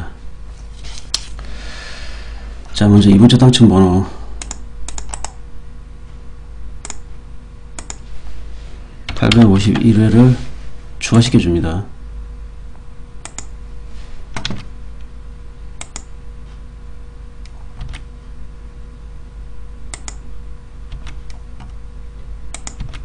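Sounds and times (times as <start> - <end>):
low hum: 0.0 - 23.0
computer keystrokes and clicks: 4.4 - 5.4, 6.8 - 7.0, 7.8 - 8.0, 13.2 - 13.5, 14.4 - 14.7, 15.8 - 16.1, 17.4 - 18.1, 19.9 - 20.3, 20.9 - 21.8, 22.5 - 23.0.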